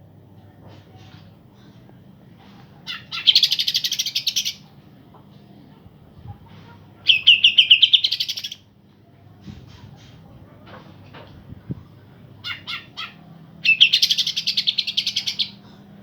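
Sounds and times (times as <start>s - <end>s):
soft bird chirps: 7.1s - 8.6s.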